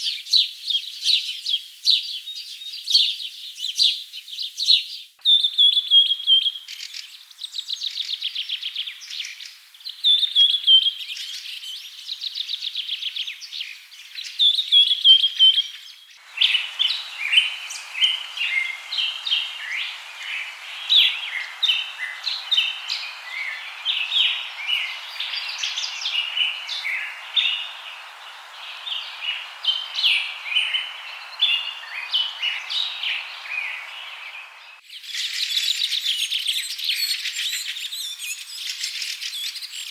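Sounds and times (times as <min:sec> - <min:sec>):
chorus of birds chirping: 0:00.0 - 0:39.9
steady background hiss: 0:16.2 - 0:35.0.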